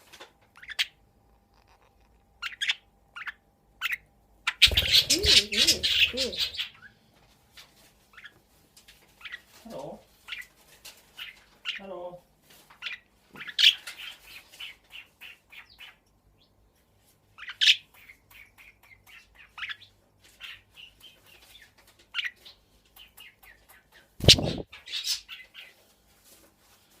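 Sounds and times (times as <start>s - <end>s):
budgerigars chirping: 0.6s - 1.0s, 2.4s - 6.9s, 24.2s - 25.7s.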